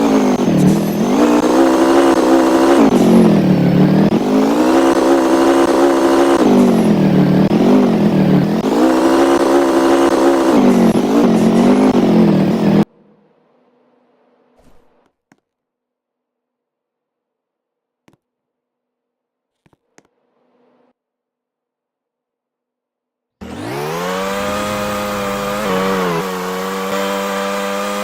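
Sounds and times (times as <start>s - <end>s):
engine revving: 0.0s - 12.9s, 23.4s - 28.0s.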